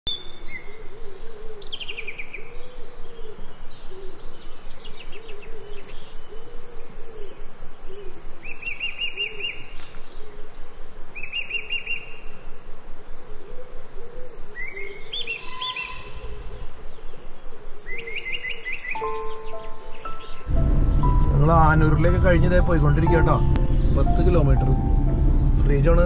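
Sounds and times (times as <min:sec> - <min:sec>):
low hooting bird call: 0:00.1 - 0:25.7
high chirping trills: 0:18.6 - 0:26.0.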